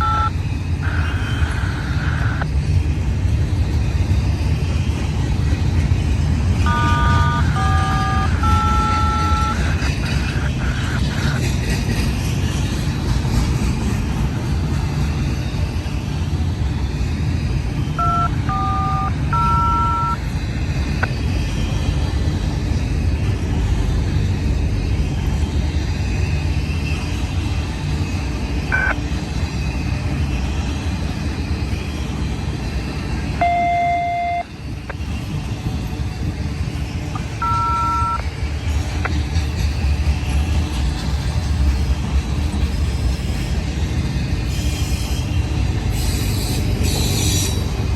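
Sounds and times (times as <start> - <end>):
short two-tone electronic beeps: 0.0 - 2.5, 6.7 - 9.6, 18.0 - 20.2, 33.4 - 34.5, 37.2 - 38.2
freight train rumbling past: 0.0 - 47.9.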